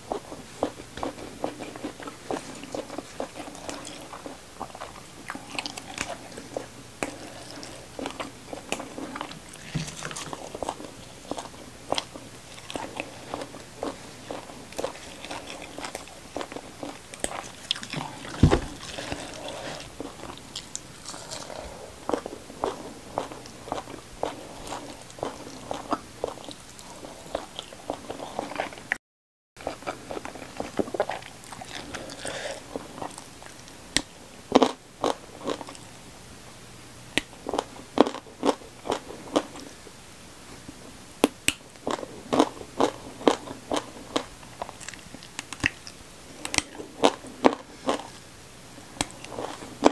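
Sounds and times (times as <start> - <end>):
chewing and crunching greens: 0.0 - 29.0, 29.6 - 35.8, 37.2 - 39.8, 41.2 - 48.2, 48.8 - 49.9
dull thump: 18.3 - 18.8.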